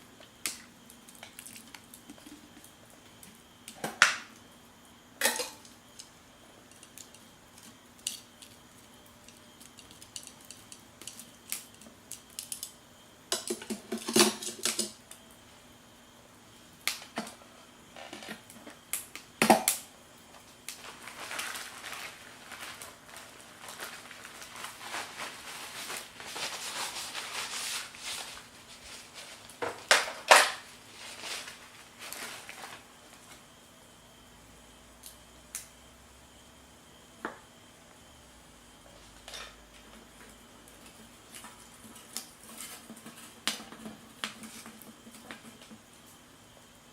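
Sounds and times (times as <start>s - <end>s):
scraping or rustling: 20.8s - 29.9s, 30.8s - 32.8s.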